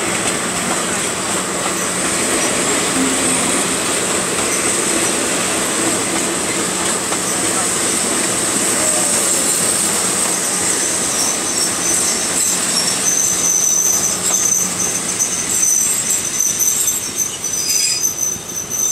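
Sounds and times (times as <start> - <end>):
train wheels rumbling on rails: 0.0 - 18.9.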